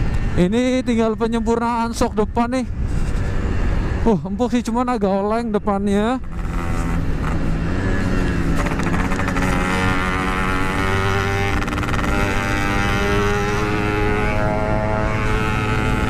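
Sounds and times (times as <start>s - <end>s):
two-stroke motorcycle engine: 6.2s - 16.0s.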